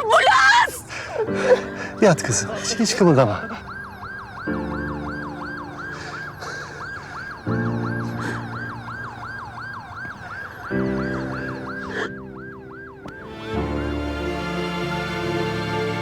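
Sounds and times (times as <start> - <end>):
ambulance siren yelping: 0.0 - 13.8
dramatic orchestral chords: 10.7 - 16.0.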